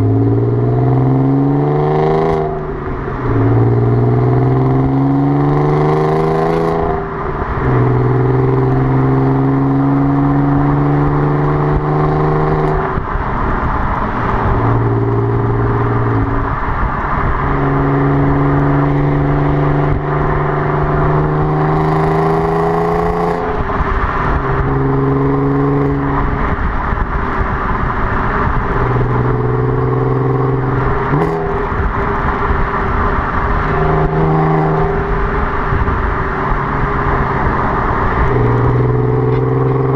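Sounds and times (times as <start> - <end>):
car engine droning: 0.0 - 39.9.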